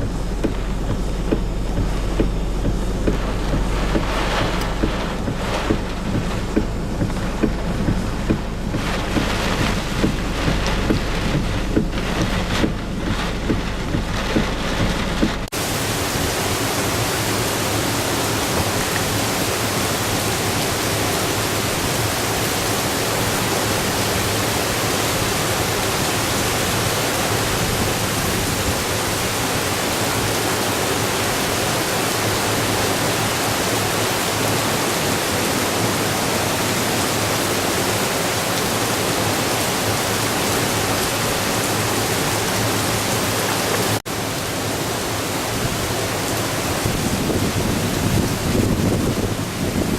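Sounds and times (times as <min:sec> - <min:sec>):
torrential rain hiss: 0:00.0 - 0:49.9
wind gusting on microphone: 0:00.0 - 0:49.9.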